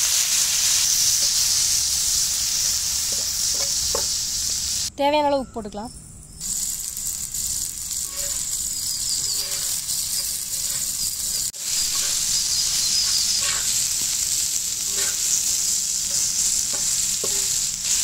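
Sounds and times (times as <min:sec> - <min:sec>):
chicken sizzling in oil: 0:00.0 - 0:04.9, 0:06.4 - 0:18.0
wooden spatula scraping pan: 0:09.2 - 0:10.9, 0:11.7 - 0:14.2, 0:14.8 - 0:18.0.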